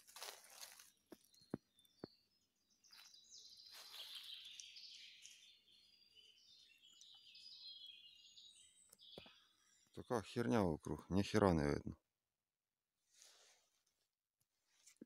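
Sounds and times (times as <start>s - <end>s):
small birds singing: 0.1s - 12.0s.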